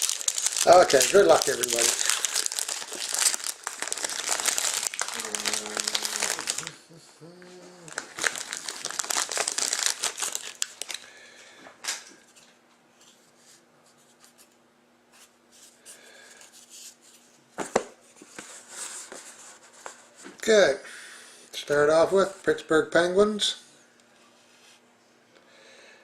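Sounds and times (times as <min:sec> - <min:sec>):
packaging crinkling and tearing: 0:00.0 - 0:06.8, 0:07.8 - 0:11.1.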